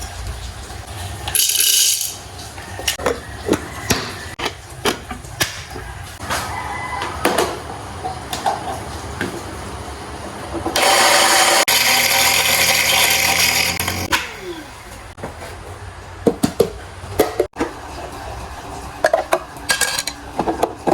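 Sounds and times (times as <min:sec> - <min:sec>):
kitchen clatter: 0:00.0 - 0:09.6, 0:16.2 - 0:20.9
kitchen appliance motor running: 0:10.8 - 0:15.1.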